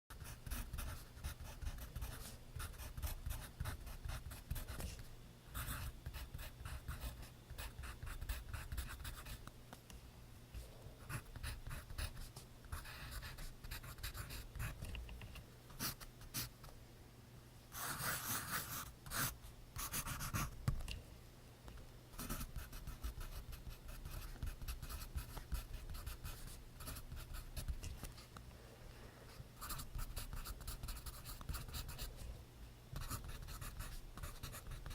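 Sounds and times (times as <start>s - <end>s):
pencil writing on paper: 0.1s - 5.0s, 11.1s - 14.8s, 17.8s - 20.5s, 22.2s - 27.8s, 33.0s - 34.9s.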